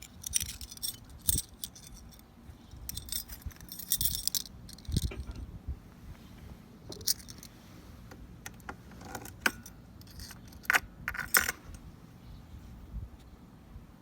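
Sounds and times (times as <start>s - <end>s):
keys jangling: 0.0s - 5.4s, 6.9s - 7.5s, 9.5s - 11.6s
faint low rumble: 0.0s - 8.5s.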